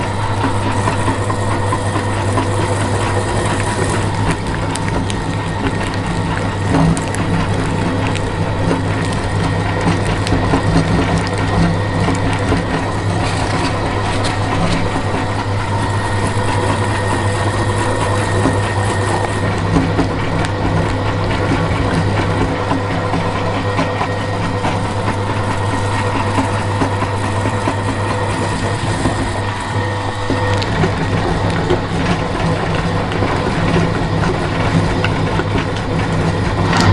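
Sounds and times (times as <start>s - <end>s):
electric meat grinder humming: 0.0s - 36.9s
candy crackling as crushed: 0.8s - 23.5s.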